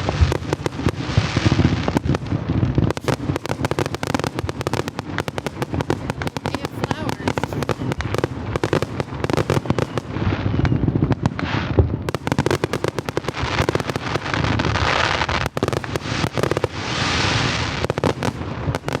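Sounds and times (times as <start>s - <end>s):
fireworks booms and crackling: 0.0s - 19.0s
hissing crackle: 0.0s - 19.0s.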